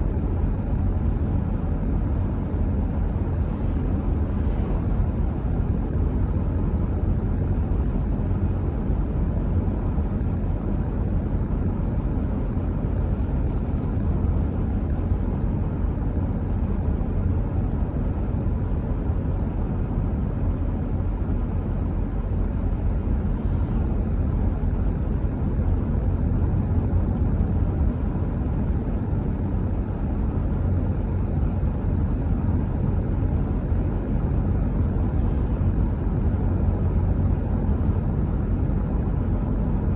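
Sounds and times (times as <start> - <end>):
car driving with tyre noise: 0.0 - 39.9.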